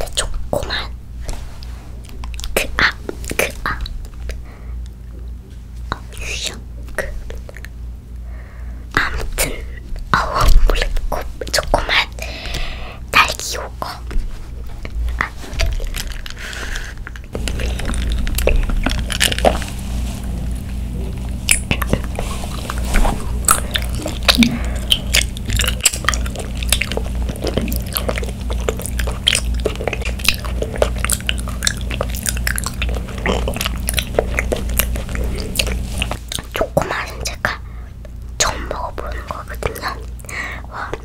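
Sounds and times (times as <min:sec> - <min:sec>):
low hum: 0:00.0 - 0:41.0
wet chewing clicks and smacks: 0:02.0 - 0:05.0, 0:14.8 - 0:19.8, 0:20.6 - 0:41.0.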